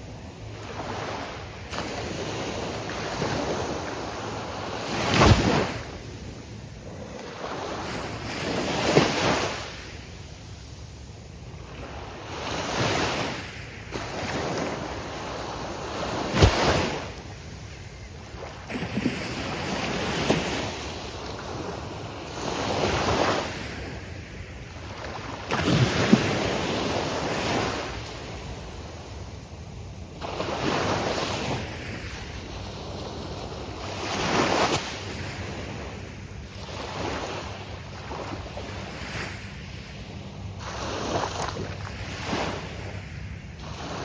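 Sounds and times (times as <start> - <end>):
surf breaking on sandy beach: 16.1 - 17.2.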